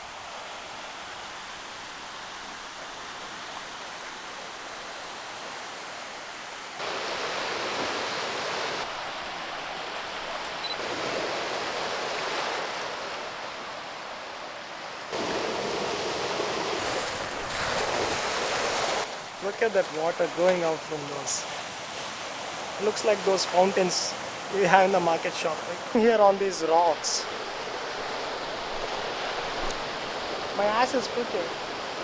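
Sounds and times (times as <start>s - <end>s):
water rushing through rock holes: 6.8s - 13.8s, 15.1s - 32.0s
sea waves washing over rocks: 14.9s - 32.0s.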